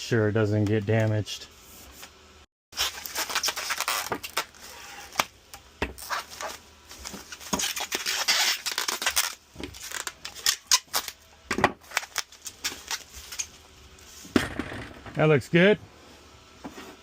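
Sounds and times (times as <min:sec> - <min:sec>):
bubble wrap crinkling and crackling: 0:02.8 - 0:05.3, 0:06.0 - 0:13.6.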